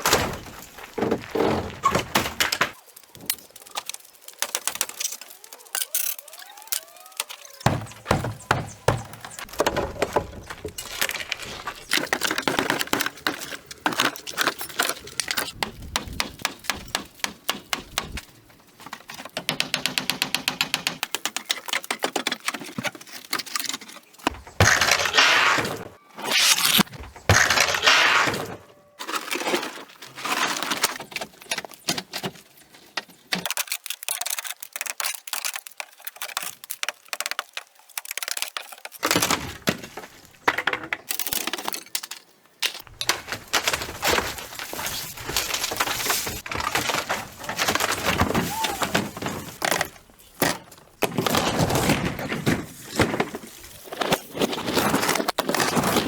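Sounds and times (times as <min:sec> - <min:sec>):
knocks cracks and breaking: 0:00.0 - 0:06.1, 0:42.9 - 0:54.3.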